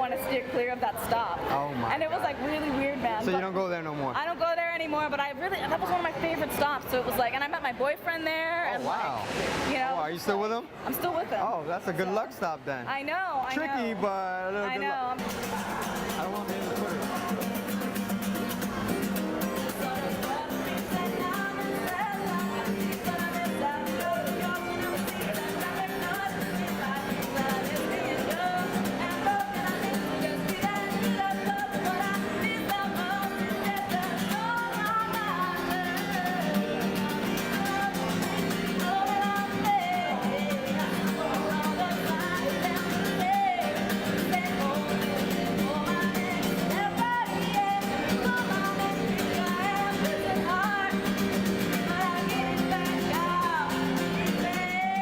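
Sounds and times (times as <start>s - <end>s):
guitar accompaniment: 12.9s - 55.0s
person singing: 15.2s - 55.0s.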